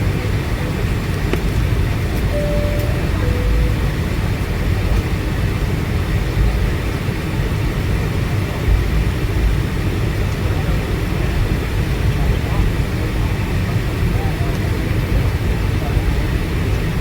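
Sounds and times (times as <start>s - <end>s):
airplane cabin rumble: 2.2s - 5.1s
two-note chime: 2.3s - 4.4s.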